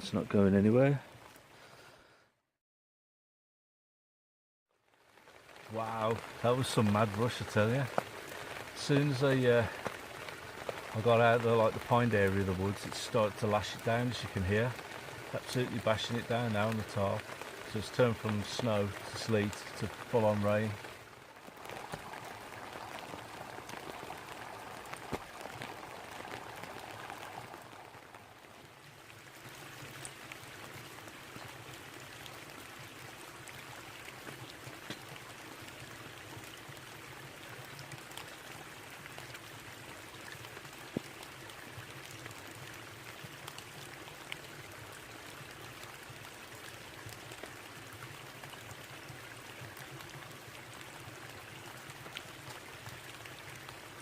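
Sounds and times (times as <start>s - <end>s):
heavy rain on a tarp: 4.7s - 54.0s
babbling brook: 4.9s - 54.0s
drops tapping on a tarp: 7.9s - 8.2s, 9.8s - 10.9s, 21.6s - 27.4s, 40.9s - 41.2s.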